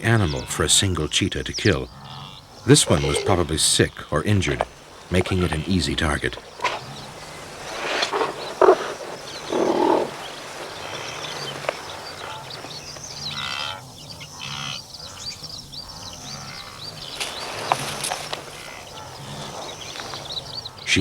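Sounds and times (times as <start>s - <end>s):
low animal grunt: 0.0s - 13.6s
steady high chirping: 0.0s - 21.0s
bleat-like animal calls: 2.0s - 12.7s.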